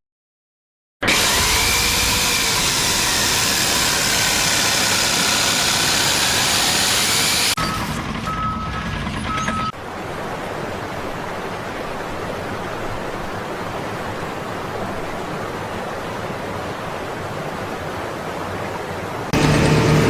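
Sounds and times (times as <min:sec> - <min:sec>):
heavy machinery engine: 0:01.0 - 0:09.7, 0:19.3 - 0:20.0
reversing alarm beeps: 0:07.6 - 0:09.8.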